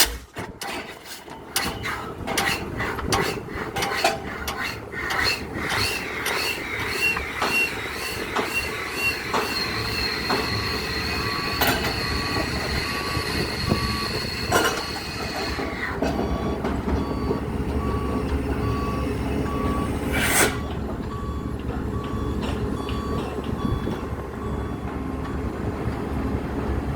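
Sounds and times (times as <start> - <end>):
sharp metallic impacts: 0.0 - 0.4
engine rumble: 7.2 - 26.9.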